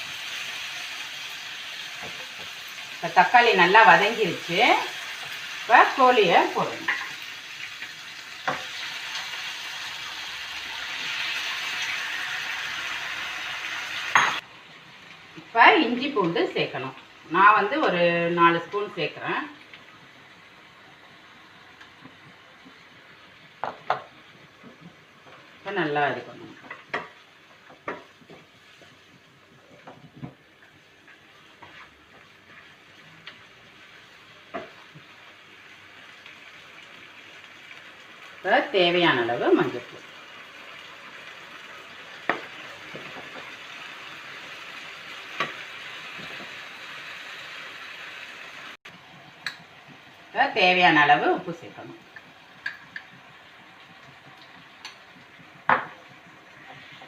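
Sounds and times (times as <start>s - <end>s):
chicken sizzling in hot oil: 0.0s - 57.0s.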